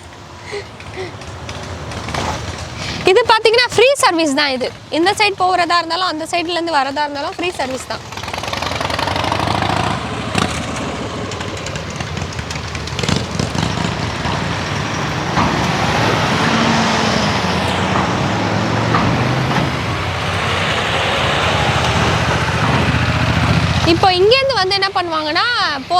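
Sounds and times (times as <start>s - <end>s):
tyres rolling: 0.0s - 24.9s
car engines running: 0.0s - 25.9s
sharp clunks: 10.2s - 23.9s.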